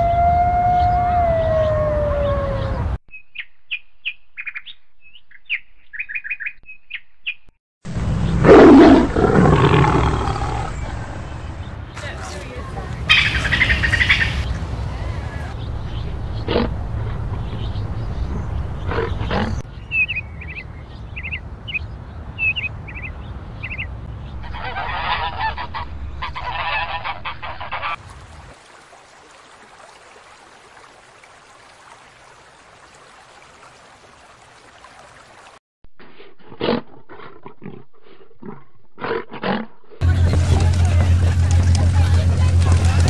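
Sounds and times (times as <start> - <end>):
overlapping bird calls: 8.2 - 12.1, 13.1 - 15.2, 23.6 - 28.0.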